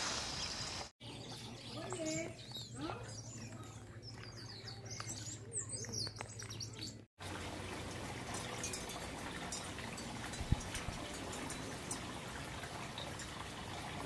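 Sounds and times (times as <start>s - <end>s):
birds splashing in water: 0.0s - 14.0s
small birds chirping: 0.2s - 7.7s.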